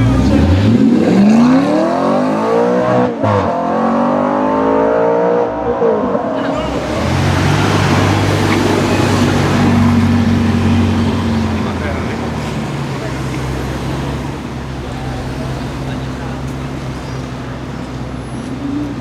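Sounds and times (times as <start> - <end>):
sports car engine accelerating: 0.0 - 19.0
low engine drone: 4.1 - 19.0.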